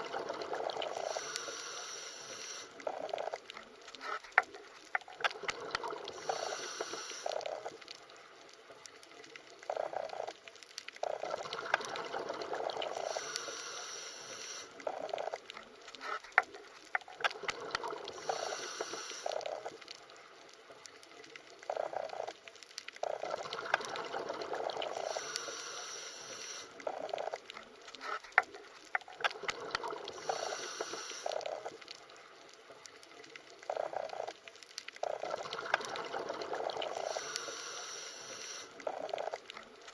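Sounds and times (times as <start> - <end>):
muffled underwater water rush: 0.0 - 39.9.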